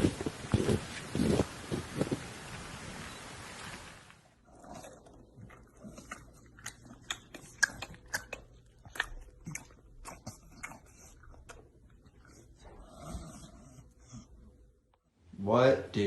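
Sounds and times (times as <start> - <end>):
animal chewing crunches: 0.0 - 2.3, 4.5 - 12.7.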